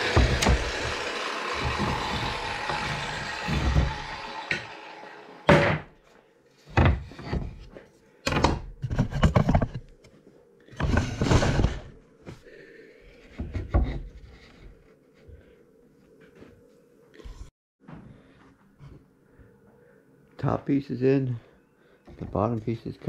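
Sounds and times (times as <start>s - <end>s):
wooden boards thunking: 0.0s - 4.8s, 5.5s - 5.9s
wood scraping: 0.0s - 6.0s, 6.6s - 12.4s, 13.1s - 15.6s.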